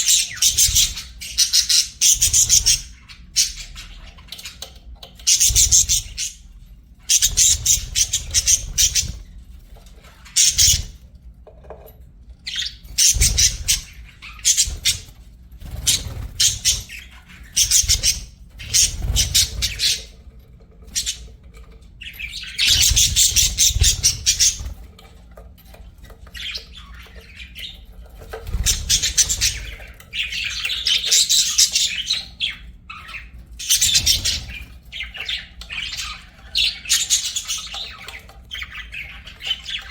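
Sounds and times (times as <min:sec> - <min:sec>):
budgerigars chattering and chirping: 0:00.0 - 0:09.3, 0:10.2 - 0:11.0, 0:12.5 - 0:20.2, 0:20.9 - 0:21.4, 0:22.0 - 0:24.8, 0:26.2 - 0:39.9.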